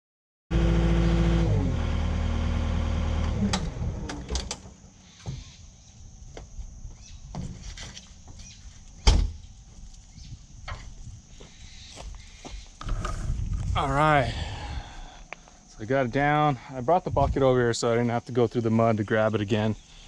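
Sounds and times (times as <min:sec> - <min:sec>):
diesel engine running: 0:00.5 - 0:04.8
loud thump: 0:09.0 - 0:09.4.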